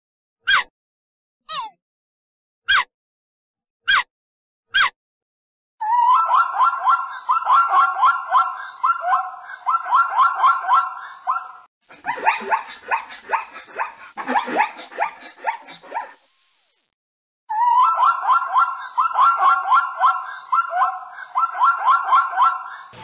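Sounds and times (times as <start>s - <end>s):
zebra yelping barks: 6.1s - 16.2s, 17.7s - 22.9s.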